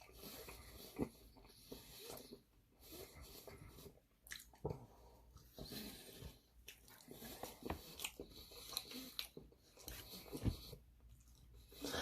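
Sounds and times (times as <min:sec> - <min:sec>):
person chewing and biting food: 0:04.2 - 0:04.8, 0:06.5 - 0:10.5.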